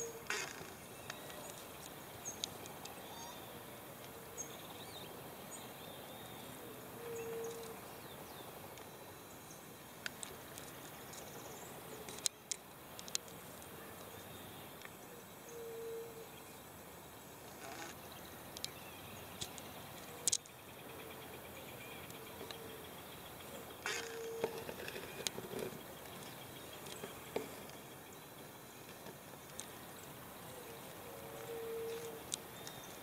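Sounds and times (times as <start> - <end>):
small birds chirping: 0.0 - 16.6
steady hiss: 0.0 - 33.0.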